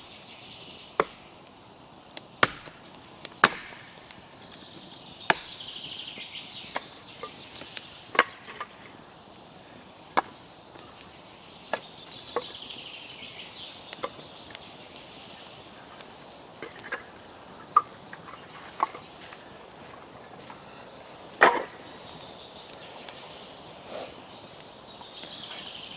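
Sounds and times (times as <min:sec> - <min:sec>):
axe splitting firewood: 0:02.4 - 0:04.0, 0:05.3 - 0:05.6, 0:21.4 - 0:21.8.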